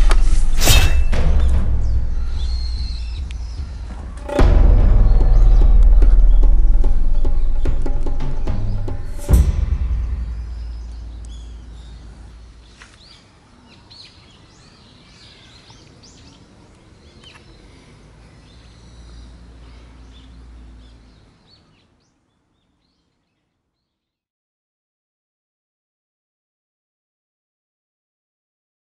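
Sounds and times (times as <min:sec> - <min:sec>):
deep drum hit: 0:00.0 - 0:12.6
low outdoor rumble: 0:00.0 - 0:12.8
small birds chirping: 0:00.6 - 0:09.4, 0:10.1 - 0:24.2.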